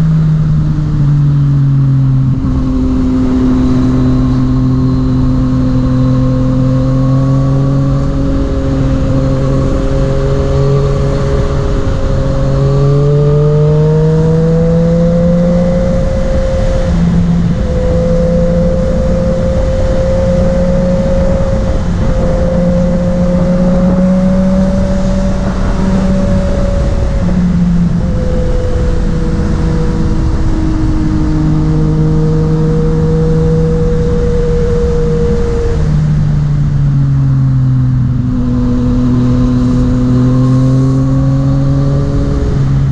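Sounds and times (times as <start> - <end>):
motorcycle engine running: 0.0 - 42.9
road and wind noise: 0.0 - 42.9.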